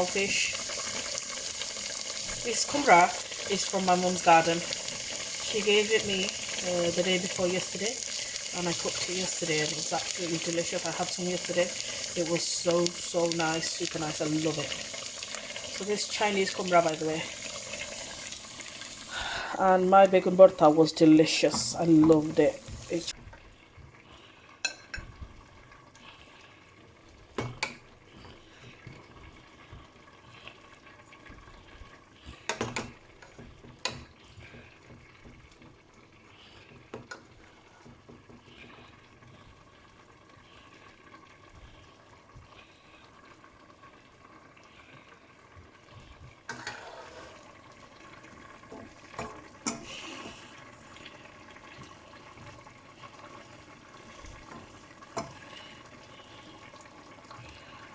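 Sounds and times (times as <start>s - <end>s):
tap running: 21.4s - 23.1s.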